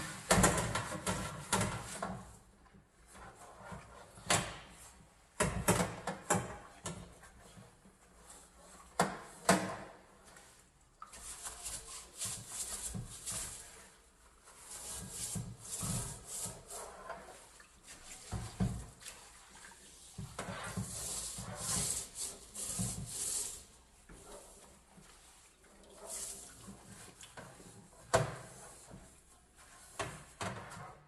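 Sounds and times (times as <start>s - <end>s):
scrubbing a stove: 6.8s - 30.9s.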